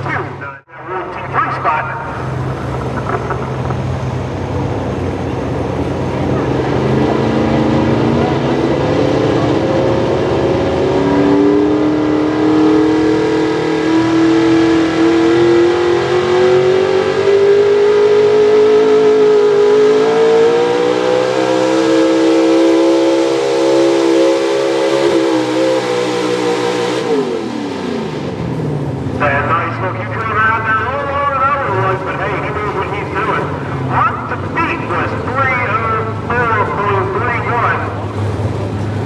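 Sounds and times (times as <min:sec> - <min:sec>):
truck engine revving under load: 0:00.0 - 0:39.0.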